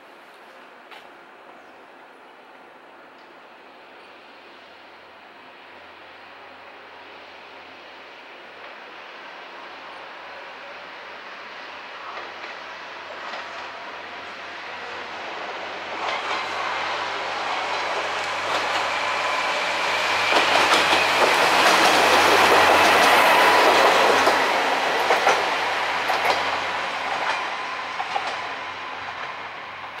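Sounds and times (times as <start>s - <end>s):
diesel railcar passing: 0.0s - 30.0s
wheels clicking over rail joints: 26.1s - 27.4s.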